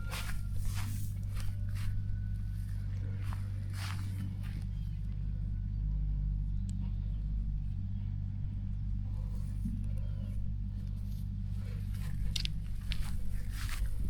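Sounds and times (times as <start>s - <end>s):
tractor engine idling: 0.0s - 14.0s
rustles and crackles: 9.1s - 14.0s.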